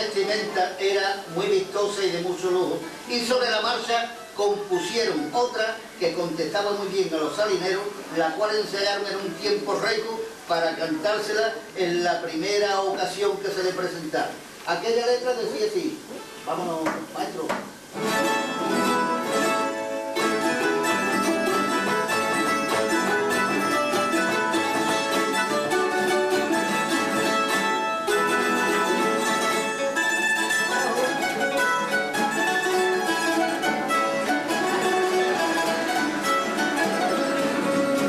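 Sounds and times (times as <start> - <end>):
guitar accompaniment: 0.0 - 14.6, 15.9 - 38.0
plucked string melody: 17.9 - 38.0.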